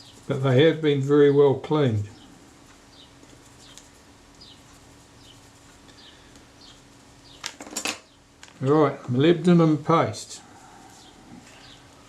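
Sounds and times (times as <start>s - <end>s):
low steady hum: 0.0s - 12.0s
faint bird chirps: 2.0s - 7.4s, 10.4s - 12.0s.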